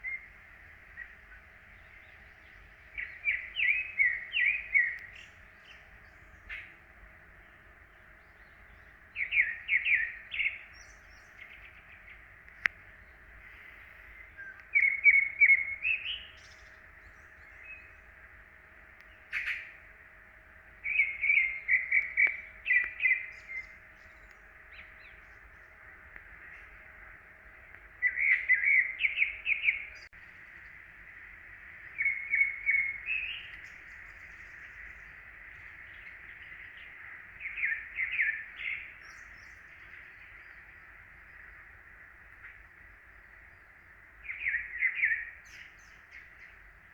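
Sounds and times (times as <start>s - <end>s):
bird singing: 0.0s - 46.9s.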